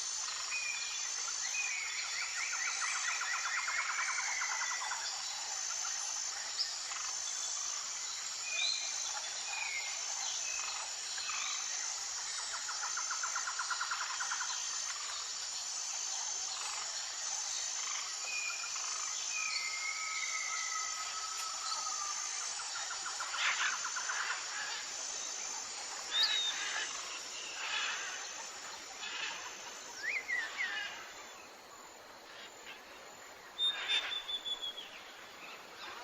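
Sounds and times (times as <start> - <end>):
high-pitched insect chorus: 0.0 - 36.0
bird calls and chirps: 33.6 - 36.0.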